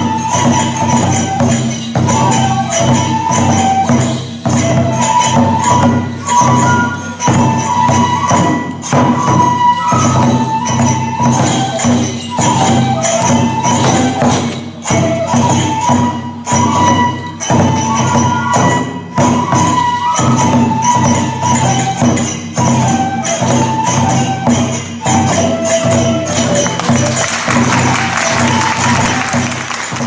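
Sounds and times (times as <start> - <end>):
flute melody: 0.0 - 30.0
small hand cymbals clashing: 0.0 - 30.0
taiko drum beats: 0.0 - 30.0
audience applause: 26.6 - 30.0.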